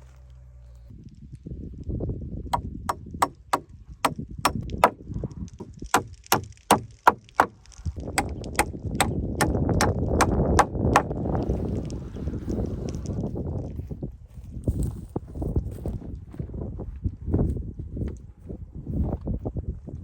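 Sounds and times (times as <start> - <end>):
hammer striking wood: 2.5 - 5.0, 5.6 - 7.6, 8.2 - 11.1.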